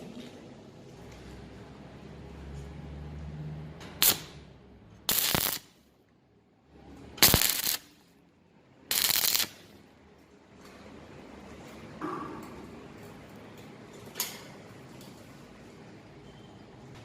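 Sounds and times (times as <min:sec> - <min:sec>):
arc welder crackling: 0:03.8 - 0:05.9, 0:07.0 - 0:08.2, 0:08.9 - 0:09.9.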